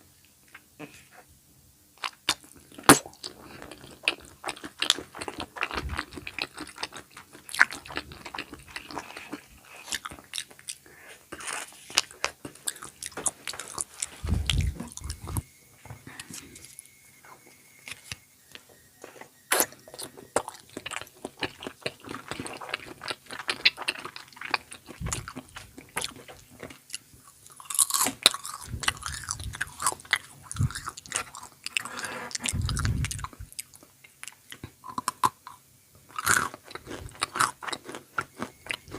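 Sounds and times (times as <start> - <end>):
crunchy chewing: 2.0 - 38.9
dull low thumps: 14.2 - 15.4.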